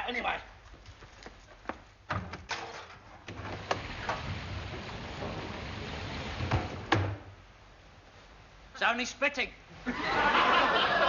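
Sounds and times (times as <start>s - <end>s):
knocks and clatters: 0.8s - 7.3s
door or window opening: 2.1s - 7.3s
thump: 3.3s - 7.3s
rain hissing: 3.3s - 11.0s.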